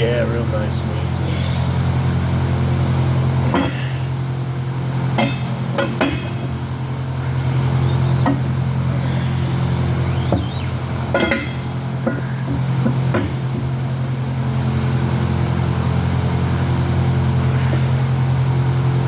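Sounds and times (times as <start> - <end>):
low mechanical hum: 0.0 - 19.0
metal knocks and clanks: 5.1 - 6.6, 7.8 - 8.5, 10.3 - 13.8.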